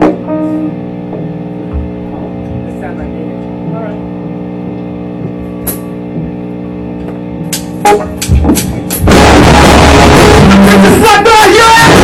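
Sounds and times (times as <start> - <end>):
electric guitar chord ringing: 0.0 - 12.0
loud distorted rock band: 7.3 - 12.0
sharp drum hits: 7.6 - 11.1.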